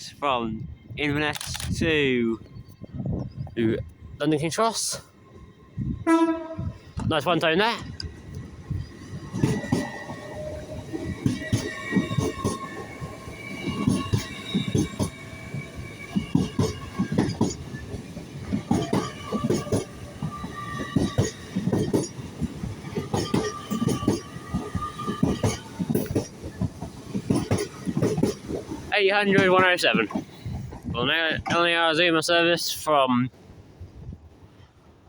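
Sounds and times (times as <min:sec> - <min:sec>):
train wheels clattering over joints: 0:06.9 - 0:32.0.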